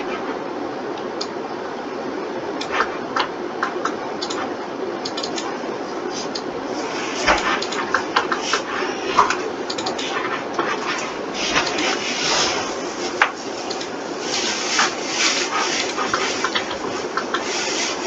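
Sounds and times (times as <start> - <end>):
mouse and keyboard clicking: 2.6 - 5.5, 7.3 - 10.8, 13.2 - 13.9.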